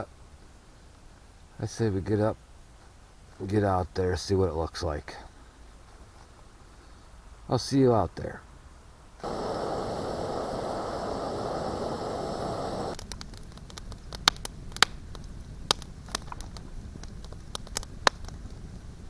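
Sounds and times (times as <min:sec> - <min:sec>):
steady rushing hiss: 0:05.3 - 0:19.0
campfire crackling and popping: 0:09.2 - 0:19.0.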